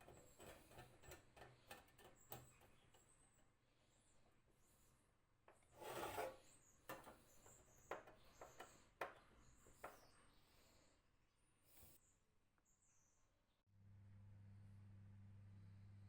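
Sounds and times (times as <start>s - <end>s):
short scrape: 5.8s - 6.6s.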